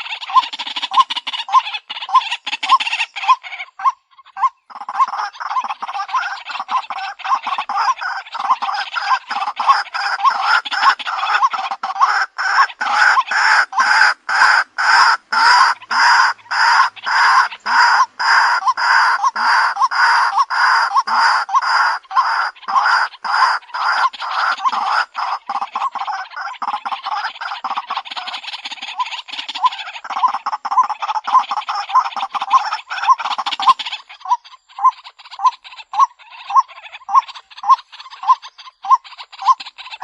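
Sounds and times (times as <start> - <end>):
waterhen calling: 0.0 - 40.0.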